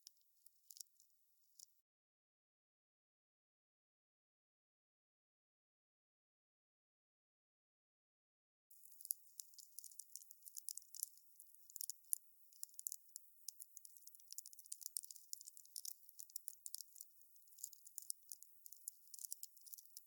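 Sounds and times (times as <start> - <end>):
campfire crackling: 8.7 - 20.0.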